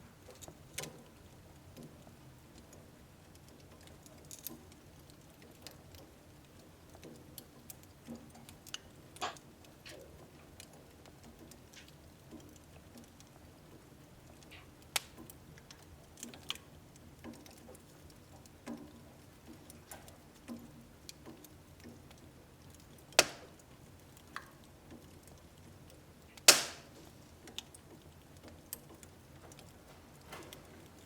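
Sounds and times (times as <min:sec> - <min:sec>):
wood fire crackling: 0:00.0 - 0:31.0
sharp pops of fire: 0:14.9 - 0:15.3, 0:23.1 - 0:23.7, 0:26.3 - 0:27.7.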